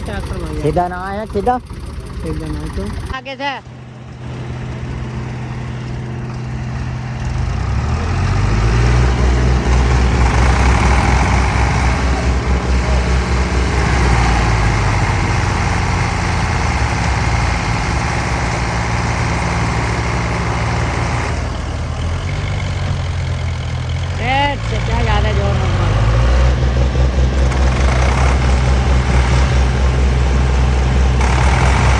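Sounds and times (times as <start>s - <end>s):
tractor diesel engine labouring: 0.0s - 31.9s.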